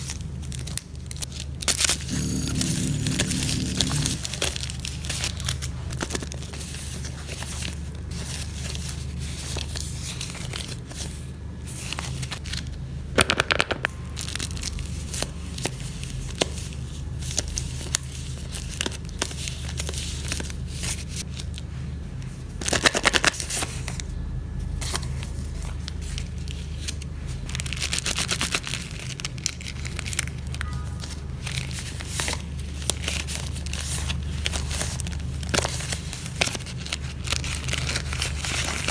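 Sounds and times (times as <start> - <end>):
steady low hum: 2.1 - 4.5
paper crinkling and rustling: 31.5 - 38.9.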